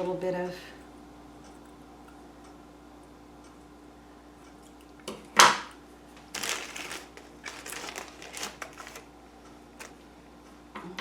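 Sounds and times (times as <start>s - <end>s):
faint room hum: 0.0s - 11.0s
loud crackle of packaging: 6.2s - 9.1s
rustling of craft pieces: 6.2s - 9.1s, 9.8s - 10.0s.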